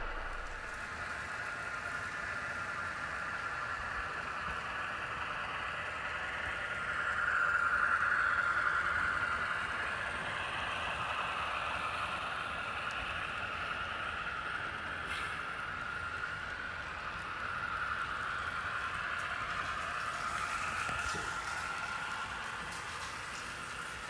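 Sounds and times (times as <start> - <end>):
model train motors whirring: 0.0 - 24.0
metal wheels rolling on rail: 16.2 - 24.0.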